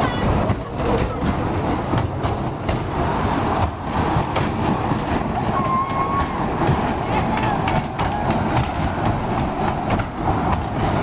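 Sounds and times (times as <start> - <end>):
small train rumbling and rattling: 0.0 - 11.0
train clicks: 0.0 - 11.0
train squeal: 1.0 - 8.4.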